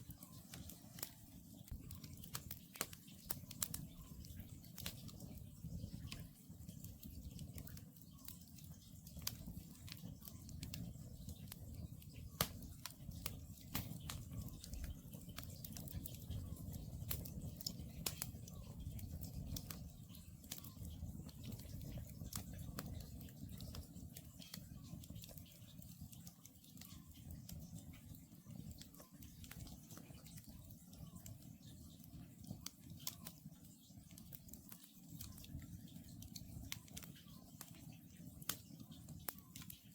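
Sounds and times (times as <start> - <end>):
campfire crackling: 0.0 - 39.9
wood popping: 9.0 - 18.7.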